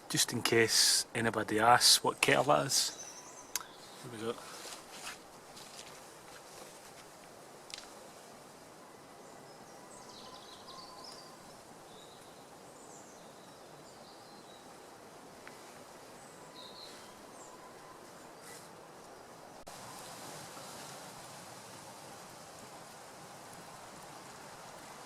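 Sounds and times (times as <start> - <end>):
steady hiss: 0.0 - 25.0
bird chirps: 9.2 - 14.7.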